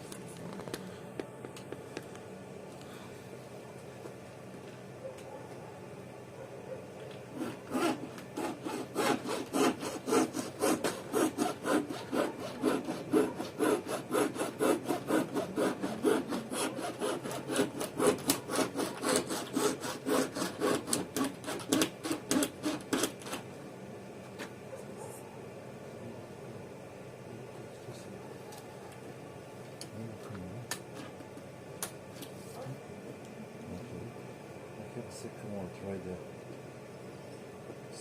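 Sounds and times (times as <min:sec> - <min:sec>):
wire sawing through sealant: 0:07.3 - 0:23.4.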